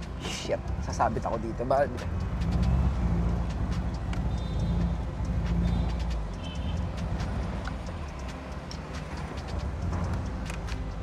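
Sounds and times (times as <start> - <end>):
car engine running low: 2.0 - 6.2.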